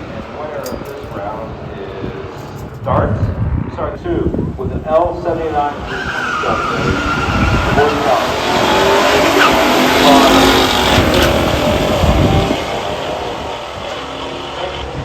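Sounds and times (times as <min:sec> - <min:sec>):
cars accelerating at full throttle: 0:03.4 - 0:15.0.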